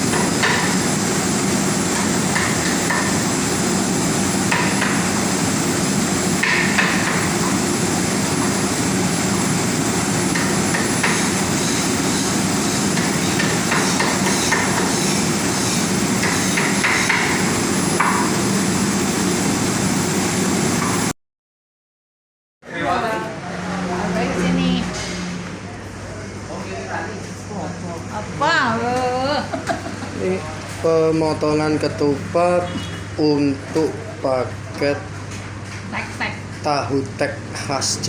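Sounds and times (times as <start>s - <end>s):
frying over a burner: 0.0s - 19.3s.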